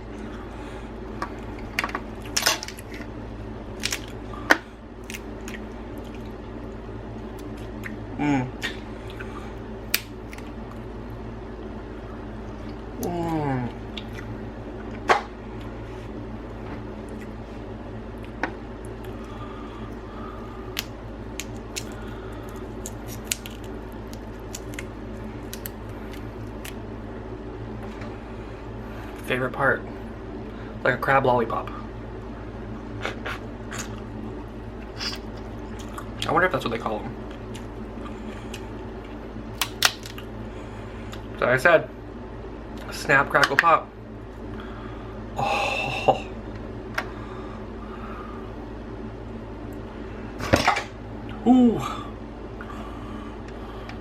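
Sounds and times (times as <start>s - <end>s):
steady low hum: 0.0s - 54.0s
crab shells cracking: 3.7s - 4.2s, 20.7s - 26.8s, 39.6s - 40.3s.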